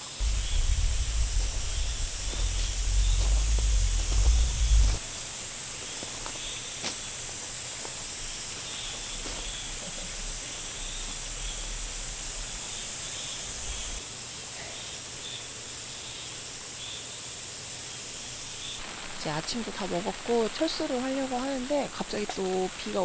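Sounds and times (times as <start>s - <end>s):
high hiss: 0.0s - 23.0s
faint ticks: 0.2s - 5.0s
soft low rumble: 0.2s - 5.0s, 8.2s - 14.0s.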